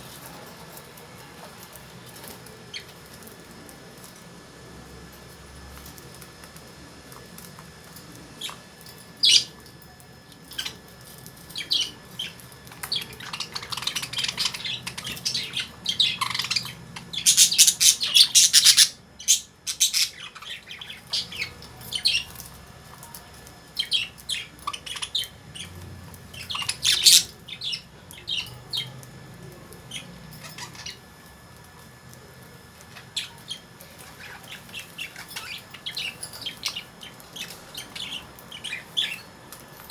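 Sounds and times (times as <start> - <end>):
lovebirds chirping and squawking: 8.2 - 9.6, 10.5 - 29.0, 29.8 - 31.3, 32.8 - 39.9.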